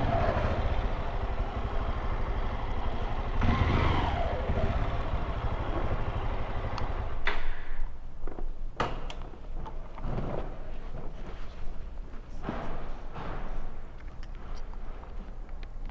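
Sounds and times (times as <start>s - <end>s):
motorcycle engine revving: 0.0s - 7.3s.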